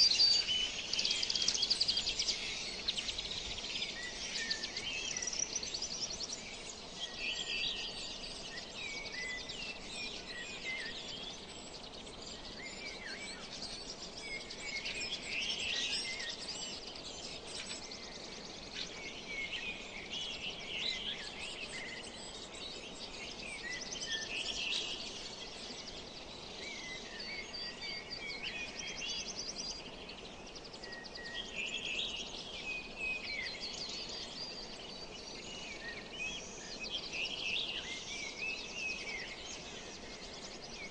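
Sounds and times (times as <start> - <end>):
small birds chirping: 0.0 - 40.9
steady background hiss: 0.0 - 40.9.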